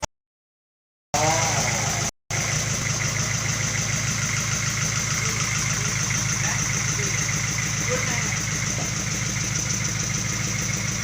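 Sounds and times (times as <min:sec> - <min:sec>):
sawmill engine running: 0:01.2 - 0:11.0.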